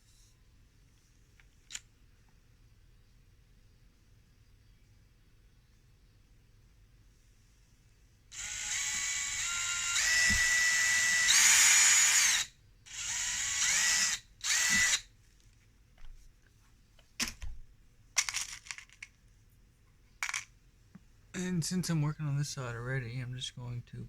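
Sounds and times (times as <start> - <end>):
power drill drilling into wood: 8.4 - 15.0.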